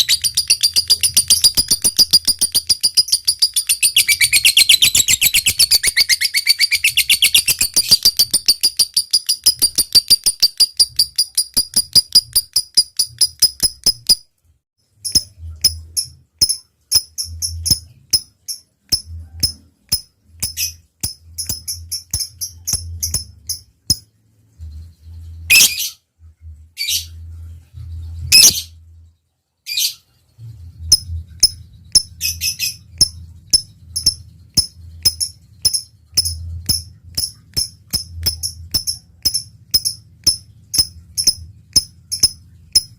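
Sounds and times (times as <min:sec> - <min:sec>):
ticking clicks: 0:00.0 - 0:06.1, 0:06.8 - 0:14.2, 0:15.1 - 0:24.0, 0:33.0 - 0:42.9
lovebird chattering: 0:00.0 - 0:14.2, 0:15.0 - 0:24.0, 0:25.5 - 0:25.9, 0:30.9 - 0:42.9
short high bird chirps: 0:00.0 - 0:14.2, 0:25.5 - 0:26.0
shrill bird calls: 0:00.0 - 0:14.2, 0:25.5 - 0:26.0.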